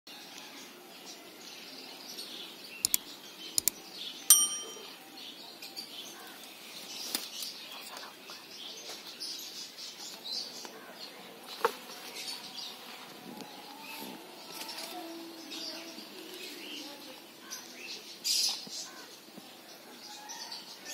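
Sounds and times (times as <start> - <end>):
short ringing note: 4.3 - 5.0.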